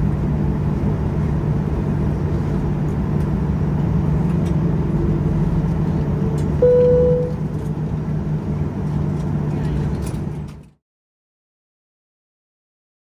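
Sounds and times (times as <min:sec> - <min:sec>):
airplane cabin drone: 0:00.0 - 0:10.8
short single tone: 0:06.6 - 0:07.5.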